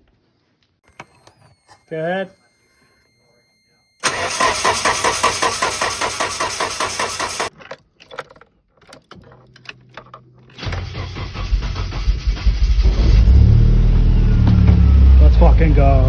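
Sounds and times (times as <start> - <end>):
clicks: 0.8 - 8.2
car engine running: 4.0 - 7.5
engine cranking on starter: 4.0 - 7.5, 10.6 - 14.5.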